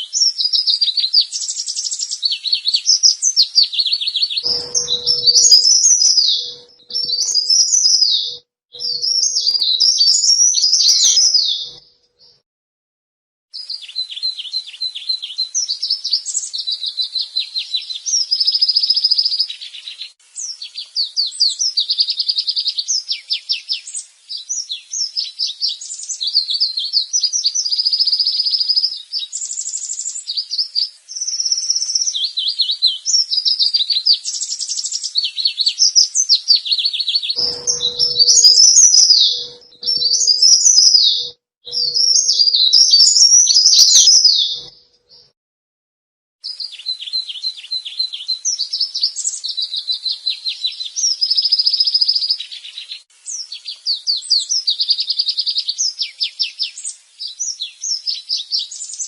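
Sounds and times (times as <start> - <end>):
warbler chirping and trilling: 1.2 - 11.8, 37.0 - 45.2.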